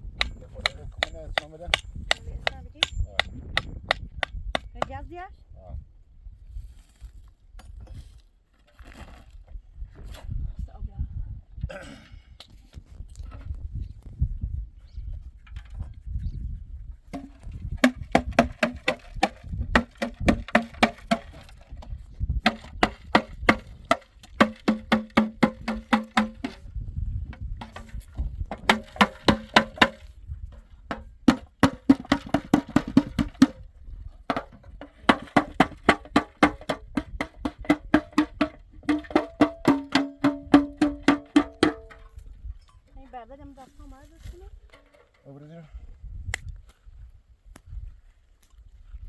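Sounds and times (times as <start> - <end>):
hammer striking nails into wood: 17.2 - 21.6, 22.4 - 26.6, 28.6 - 30.1, 31.3 - 33.5.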